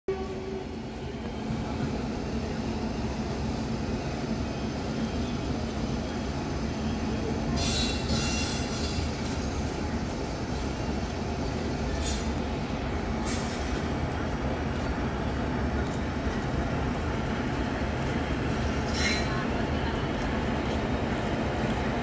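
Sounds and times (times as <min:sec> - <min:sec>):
train coaches rumbling on track: 0:00.1 - 0:22.0.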